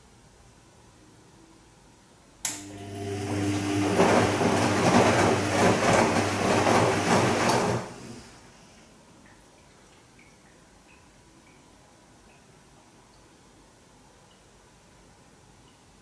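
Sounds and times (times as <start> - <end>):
washing machine hum and rushing: 2.5 - 8.8.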